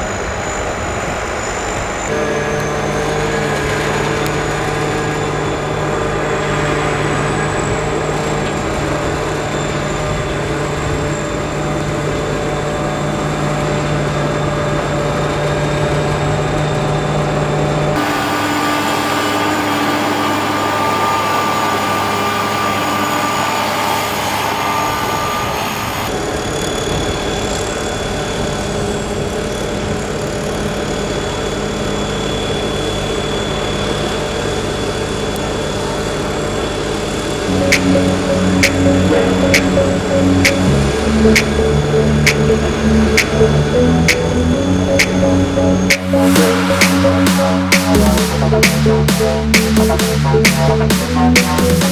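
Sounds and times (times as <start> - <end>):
combine harvester engine humming: 0.0 - 26.3, 37.4 - 51.9.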